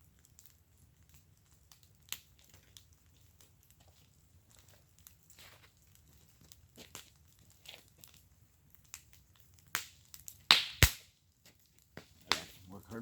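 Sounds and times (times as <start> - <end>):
wood fire crackling: 0.0 - 13.0
loud sharp snaps: 10.5 - 11.1, 12.3 - 12.5.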